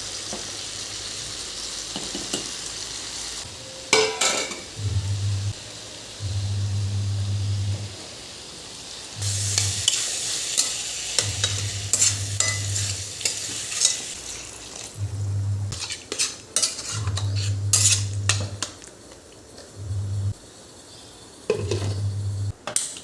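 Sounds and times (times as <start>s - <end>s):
food sizzling in a pan: 0.0s - 23.0s
low hum: 4.7s - 5.6s, 6.2s - 7.9s, 9.2s - 9.9s, 11.2s - 13.1s, 15.0s - 15.8s, 17.0s - 18.6s, 19.8s - 20.4s, 21.6s - 22.5s.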